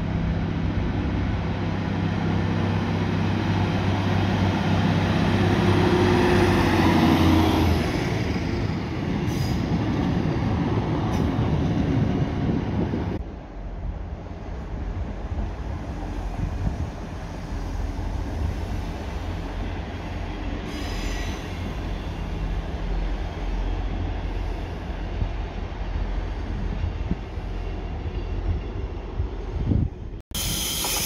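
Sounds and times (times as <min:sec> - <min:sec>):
diesel train engines rumbling: 0:00.0 - 0:31.0
wheels on rail: 0:26.4 - 0:31.0.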